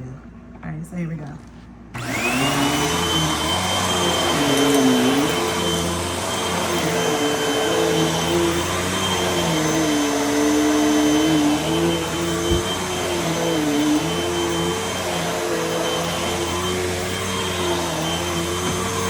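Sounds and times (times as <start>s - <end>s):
vacuum cleaner running: 1.9s - 19.0s.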